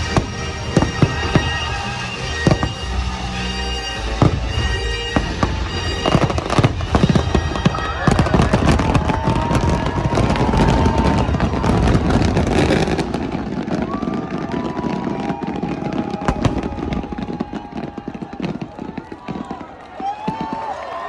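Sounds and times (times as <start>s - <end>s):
music soundtrack: 0.0s - 13.6s
fireworks bangs and crackling: 0.0s - 21.0s.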